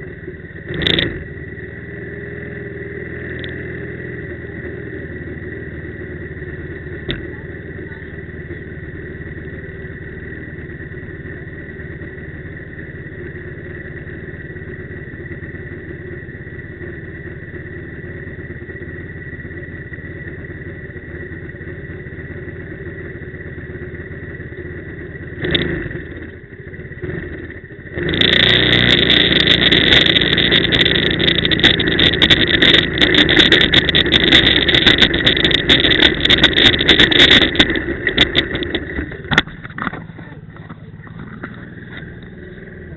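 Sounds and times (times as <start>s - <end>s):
quad bike engine running: 0.0s - 42.9s
rough rush with crackles: 25.4s - 42.9s.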